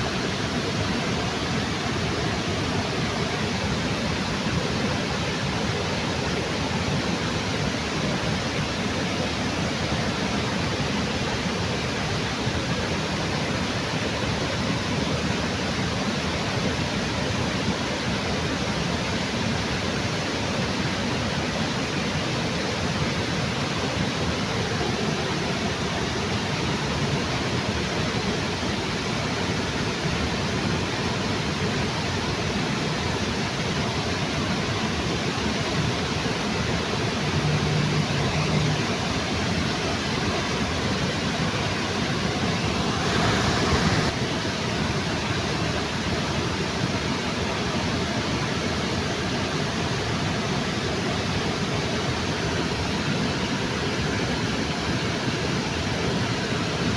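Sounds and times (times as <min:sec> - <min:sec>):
waterfall rushing: 0:20.8 - 0:56.9.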